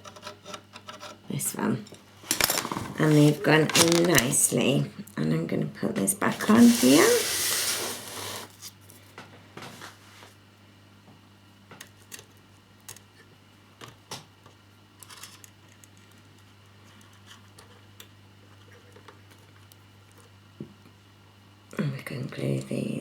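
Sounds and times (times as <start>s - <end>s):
plastic parts clicking and tapping: 3.6s - 4.4s.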